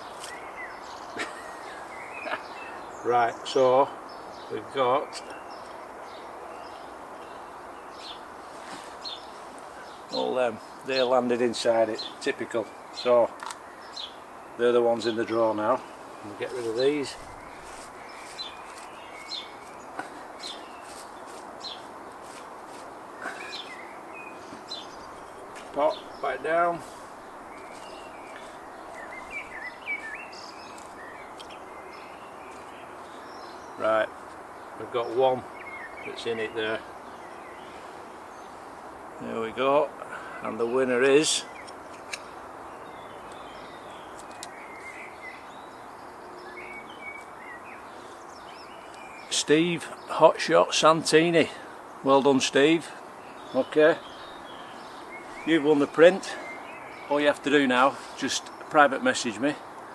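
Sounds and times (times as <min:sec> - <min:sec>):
steady outdoor hiss: 0:00.0 - 0:59.9
small bird chirping: 0:11.7 - 0:38.7, 0:40.6 - 0:49.4
faint bird chirps: 0:23.2 - 0:34.0.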